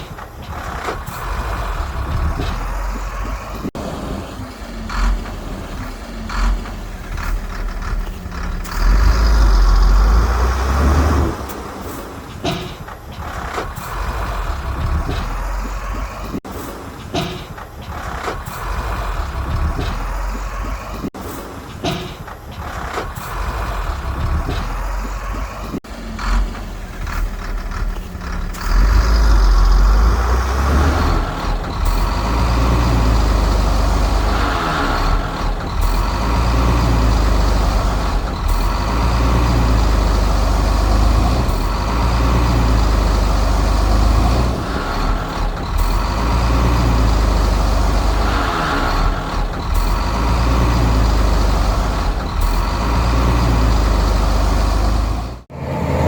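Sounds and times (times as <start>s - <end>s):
heavy diesel engine rumble: 0.0s - 56.0s.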